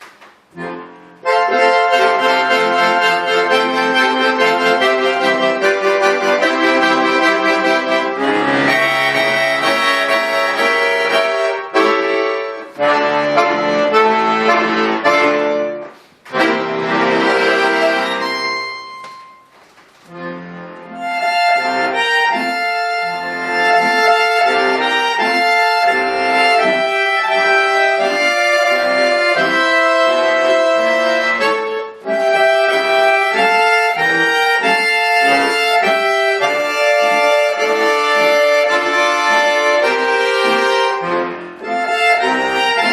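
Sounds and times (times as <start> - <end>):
button accordion playing: 0.1 - 42.9.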